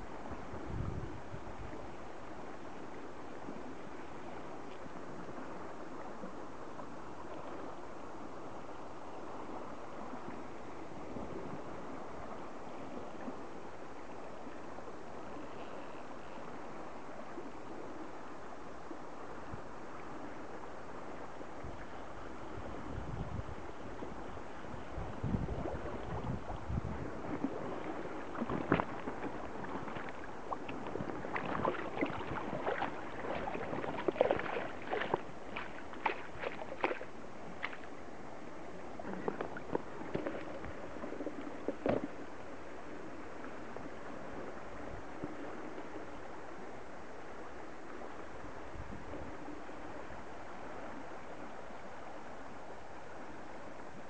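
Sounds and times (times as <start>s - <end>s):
river water running: 0.0s - 54.0s
sharp splashes and knocks: 31.3s - 37.9s.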